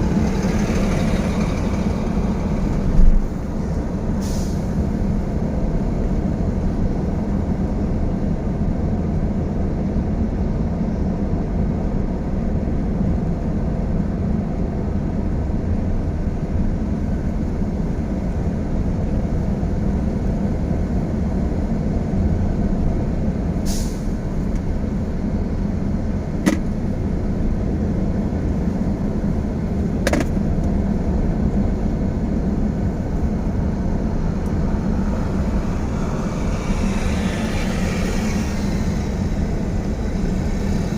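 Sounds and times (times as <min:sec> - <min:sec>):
heavy vehicle engine rumble: 0:00.0 - 0:40.9
air hiss: 0:04.2 - 0:04.7, 0:23.6 - 0:24.2.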